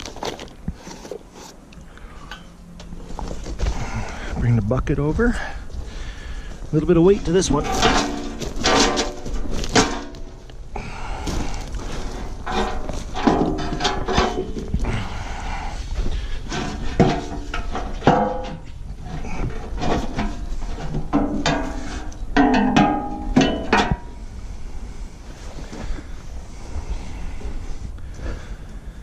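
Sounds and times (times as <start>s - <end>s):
steel parts clanking: 7.1s - 10.5s, 12.2s - 14.8s, 16.4s - 24.2s.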